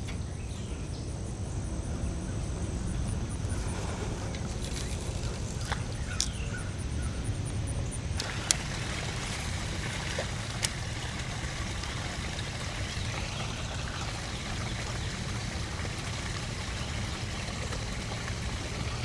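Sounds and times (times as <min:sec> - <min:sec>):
water trickling and pouring: 0:03.6 - 0:06.5, 0:08.2 - 0:19.0.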